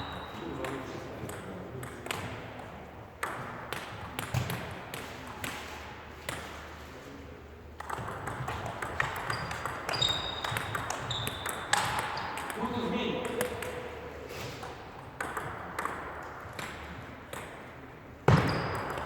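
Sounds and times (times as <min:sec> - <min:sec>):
table tennis ball hits: 0:00.6 - 0:06.6, 0:07.8 - 0:12.6, 0:14.6 - 0:19.0
short high squeaks: 0:09.3 - 0:11.6.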